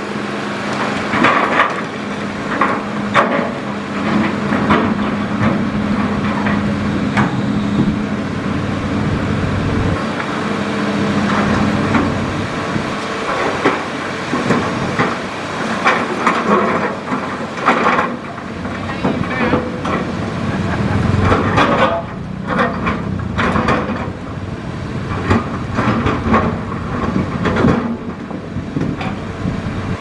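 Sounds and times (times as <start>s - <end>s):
excavator engine running: 0.0s - 30.0s
digging knocks and clatter: 11.2s - 24.2s, 25.0s - 29.2s.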